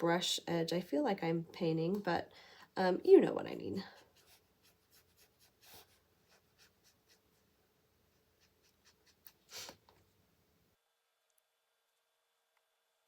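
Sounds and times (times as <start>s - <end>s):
marker strokes on paper: 3.9s - 7.5s, 8.1s - 9.8s.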